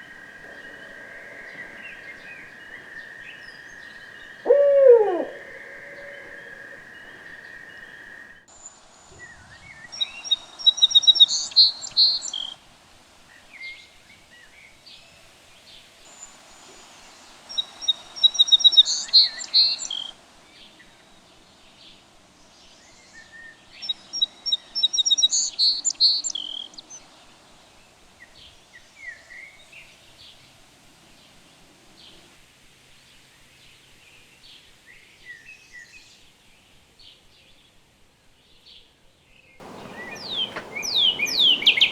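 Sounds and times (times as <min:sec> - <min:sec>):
soft bird chirps: 0:00.0 - 0:08.4, 0:39.6 - 0:41.9.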